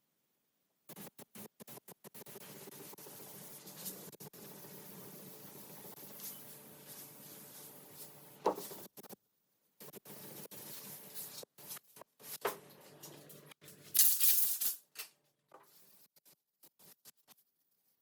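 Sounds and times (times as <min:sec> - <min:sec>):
sandpaper scratching by hand: 0:01.0 - 0:09.2.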